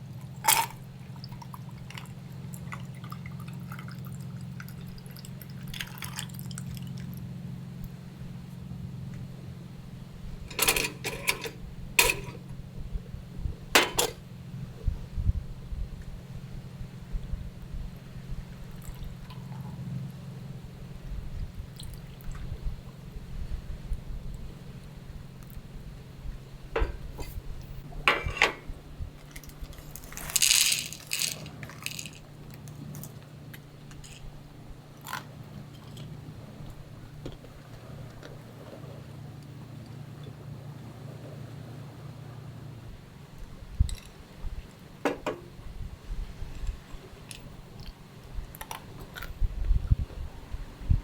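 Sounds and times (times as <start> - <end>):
low steady hum: 0.0 - 51.0
small objects clinking: 10.5 - 12.4, 29.3 - 33.2
rustling scrape: 29.4 - 33.0.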